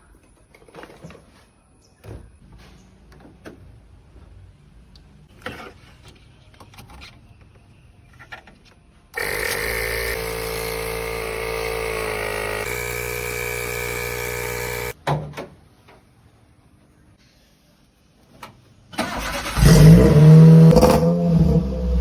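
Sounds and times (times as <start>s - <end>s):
starter motor cranking engine: 9.2s - 15.0s, 19.0s - 22.0s.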